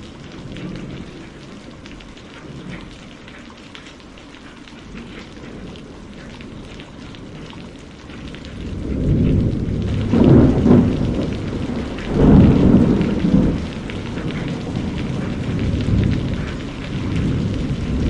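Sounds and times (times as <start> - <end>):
rain falling: 0.0 - 18.0
thunder rumbling: 5.0 - 18.0.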